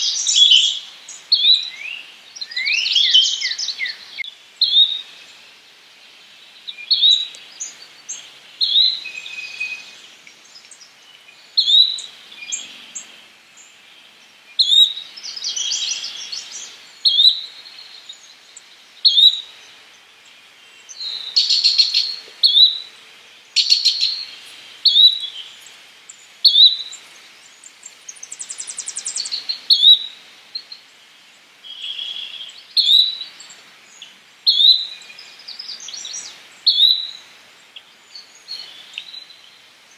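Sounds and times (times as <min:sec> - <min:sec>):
birds chattering and trilling: 0:00.0 - 0:39.9.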